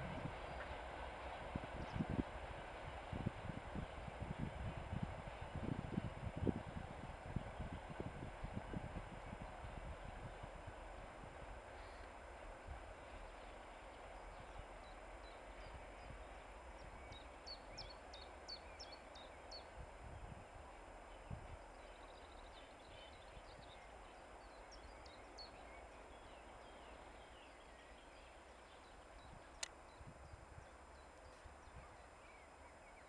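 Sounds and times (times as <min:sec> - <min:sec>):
small birds chirping: 0:21.2 - 0:33.0.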